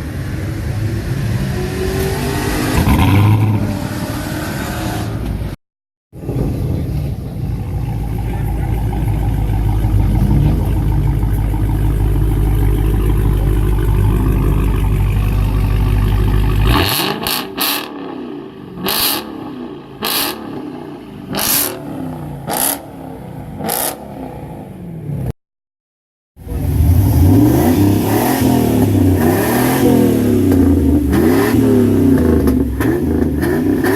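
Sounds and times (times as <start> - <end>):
car engine rumbling and revving: 0.0 - 5.6, 6.2 - 25.4, 26.4 - 33.9.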